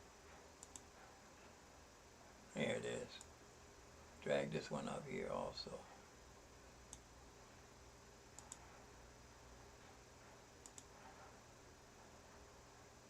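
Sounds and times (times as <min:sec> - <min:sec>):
computer mouse clicks: 0:00.6 - 0:00.9, 0:06.9 - 0:07.1, 0:08.4 - 0:08.7, 0:10.6 - 0:10.9.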